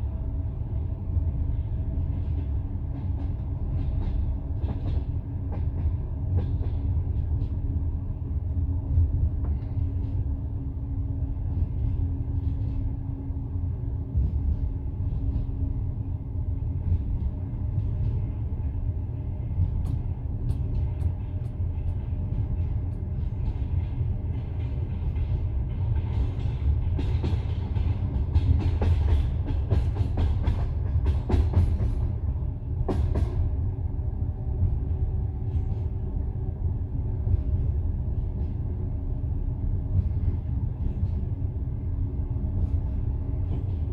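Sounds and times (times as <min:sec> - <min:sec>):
train carriage rumbling: 0:00.0 - 0:43.9
train wheels knocking on track: 0:02.2 - 0:07.8, 0:19.6 - 0:33.7.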